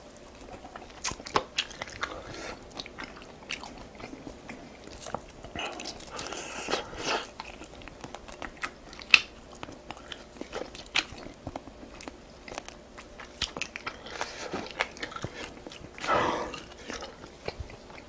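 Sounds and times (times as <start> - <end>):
person chewing and crunching food: 0.0 - 18.0.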